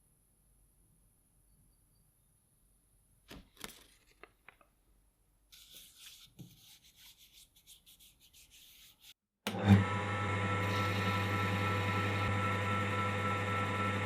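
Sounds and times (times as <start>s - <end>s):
hand rubbing a workpiece: 5.6s - 9.2s.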